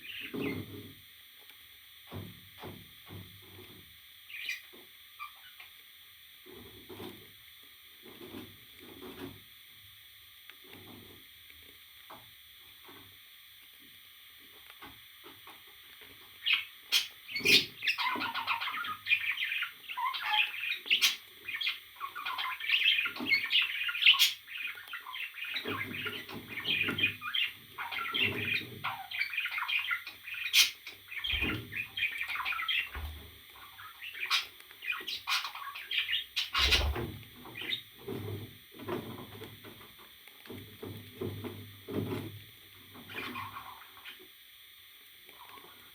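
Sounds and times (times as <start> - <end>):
parrot chattering and chirping: 16.4 - 33.0, 33.6 - 36.9.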